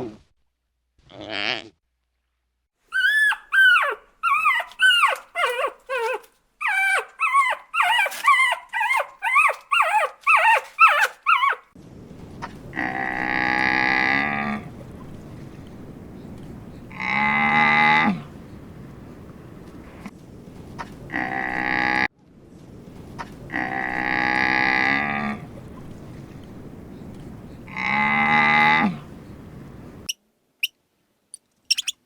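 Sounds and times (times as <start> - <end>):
long low animal calls: 2.9 - 11.7, 12.6 - 15.2, 16.8 - 18.7, 20.8 - 22.1, 23.2 - 29.7
animal yelping calls: 2.9 - 11.8, 31.7 - 32.0.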